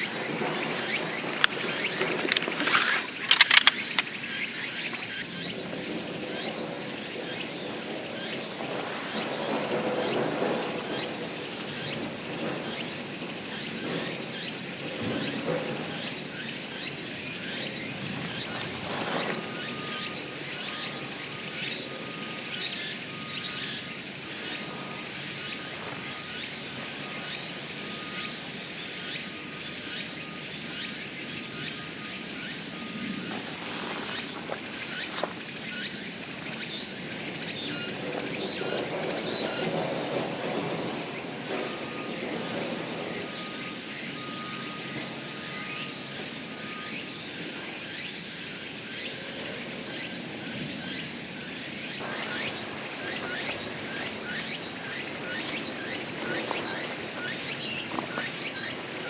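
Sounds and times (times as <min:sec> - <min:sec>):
insects shrilling in chorus: 0:00.0 - 0:59.0
short clatter: 0:01.0 - 0:04.1
handling knocks and rustles: 0:01.1 - 0:04.1.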